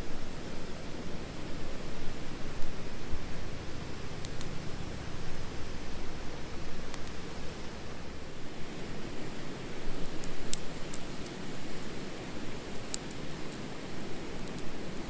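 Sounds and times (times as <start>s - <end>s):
campfire burning: 3.4s - 7.2s, 8.4s - 15.0s
fire crackles and pops: 4.2s - 4.6s, 8.5s - 15.0s.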